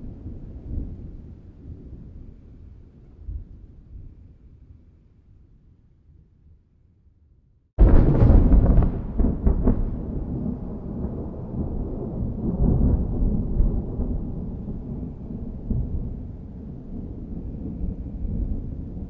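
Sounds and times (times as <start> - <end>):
thunderclap crack: 7.8 - 14.9
rolling thunder rumble: 7.8 - 19.0.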